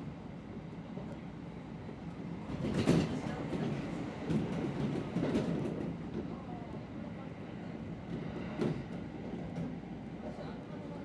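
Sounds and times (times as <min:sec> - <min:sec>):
train rattle: 0:02.5 - 0:06.4.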